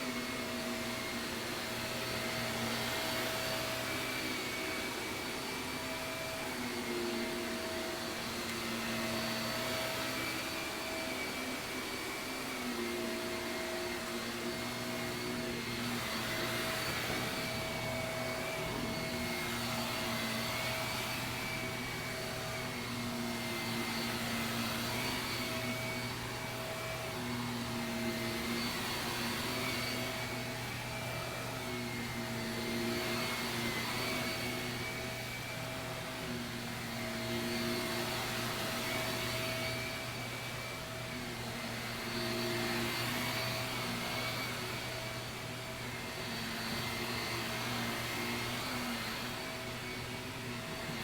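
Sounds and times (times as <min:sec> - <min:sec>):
vacuum cleaner on carpet: 0:00.0 - 0:51.0.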